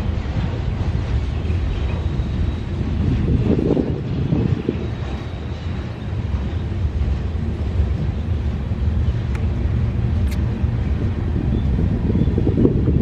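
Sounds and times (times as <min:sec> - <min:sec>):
train wheels rumbling on rail: 0:00.0 - 0:13.0
faint sharp clicks: 0:09.3 - 0:09.5, 0:10.2 - 0:10.5.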